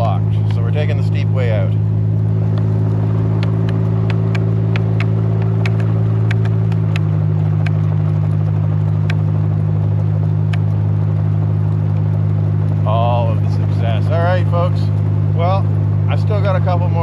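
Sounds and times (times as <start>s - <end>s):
sharp clicks: 3.3s - 7.9s, 9.0s - 9.2s, 10.4s - 10.8s.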